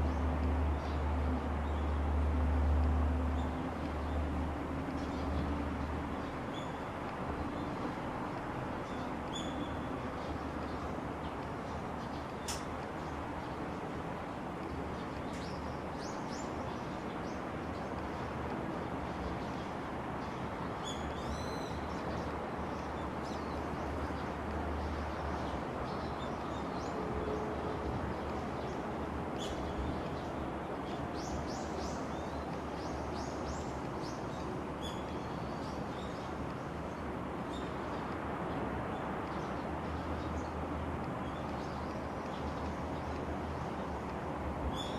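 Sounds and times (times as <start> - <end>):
outdoor background noise: 0.0 - 44.9
small birds chirping: 8.9 - 13.6.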